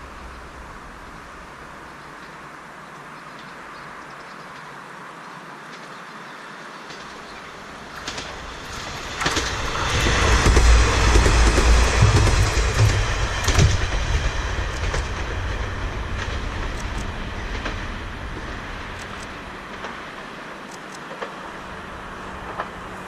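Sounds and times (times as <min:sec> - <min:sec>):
railcar running: 0:00.0 - 0:23.0
wheels thumping over rail joints: 0:06.8 - 0:20.4.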